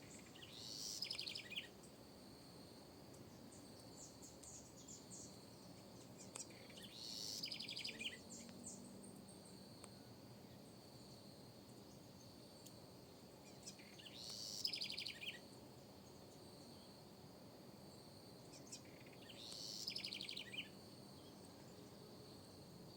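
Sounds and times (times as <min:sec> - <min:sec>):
high insect drone: 0:00.0 - 0:22.9
wren singing trills: 0:00.1 - 0:01.7, 0:03.8 - 0:08.8, 0:13.4 - 0:15.4, 0:18.5 - 0:20.7.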